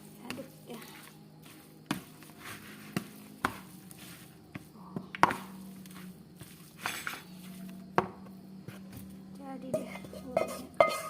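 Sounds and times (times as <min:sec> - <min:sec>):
rustling of food being stirred: 0:00.0 - 0:11.0
spoon knocking against dish: 0:09.7 - 0:11.0.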